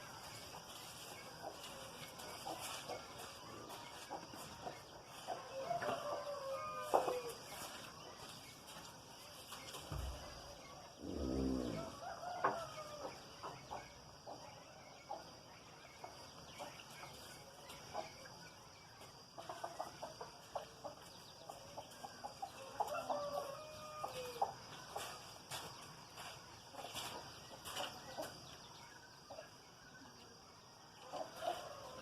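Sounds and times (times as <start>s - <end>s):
chickens clucking: 0.0s - 11.0s, 11.6s - 32.0s
chicken drawn-out call: 11.0s - 13.1s.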